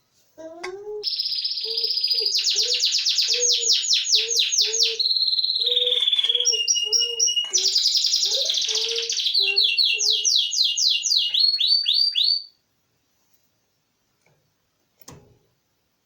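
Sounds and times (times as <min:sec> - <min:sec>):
songbird singing trills: 0:01.0 - 0:12.5.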